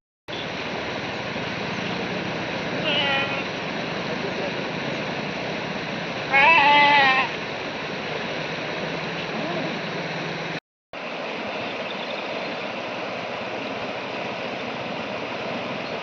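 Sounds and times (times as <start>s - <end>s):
floodwater rushing: 0.3s - 16.0s
high wavering animal cry: 2.8s - 3.5s, 6.3s - 7.4s.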